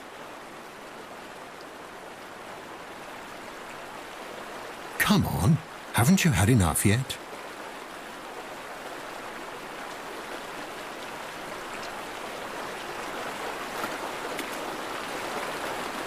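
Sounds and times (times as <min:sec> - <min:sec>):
stream water running: 0:00.0 - 0:16.0.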